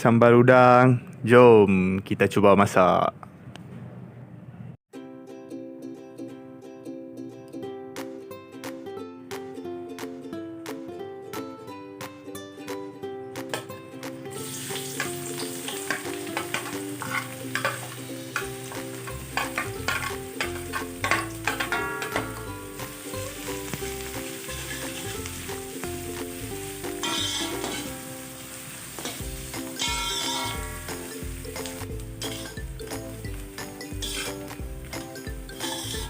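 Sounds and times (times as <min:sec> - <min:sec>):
light background music: 0:05.0 - 0:36.0
food sizzling in hot oil: 0:14.3 - 0:36.0
utensil scraping a pan: 0:15.7 - 0:22.9, 0:27.0 - 0:28.0, 0:29.0 - 0:30.9, 0:32.2 - 0:32.6, 0:34.0 - 0:34.5, 0:35.5 - 0:36.0.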